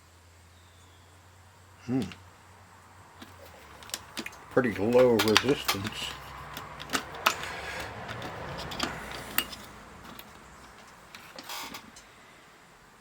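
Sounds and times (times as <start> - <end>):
small objects clicking and tapping: 3.2 - 12.1.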